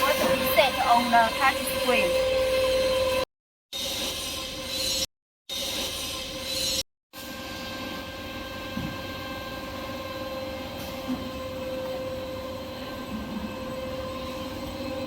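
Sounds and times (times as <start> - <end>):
constant machine whine: 0.0 - 15.0
machine mechanical hum: 3.8 - 15.0.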